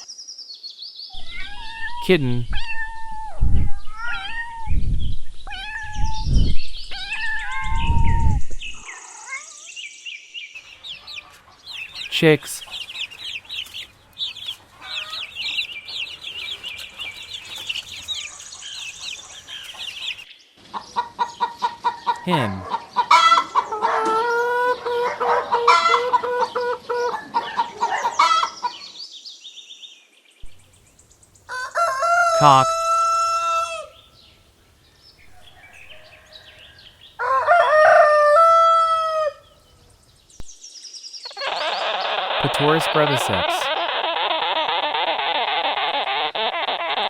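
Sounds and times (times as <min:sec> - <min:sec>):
kitten meowing: 0:01.2 - 0:04.7, 0:05.5 - 0:06.3
hen clucking: 0:10.8 - 0:28.8, 0:31.8 - 0:33.9, 0:41.4 - 0:47.0
hen calling loudly: 0:11.0 - 0:20.2, 0:22.1 - 0:23.6, 0:31.8 - 0:33.9, 0:41.4 - 0:47.0.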